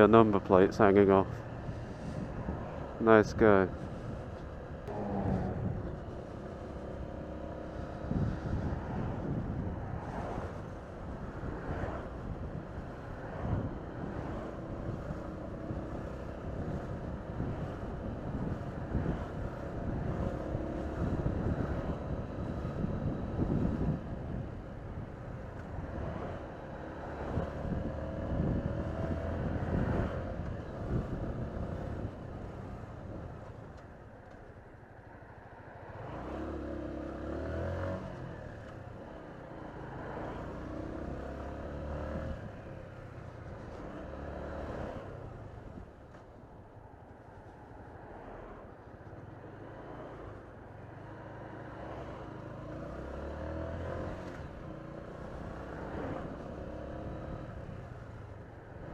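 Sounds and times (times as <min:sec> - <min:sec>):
motorcycle engine revving: 0:04.7 - 0:09.4.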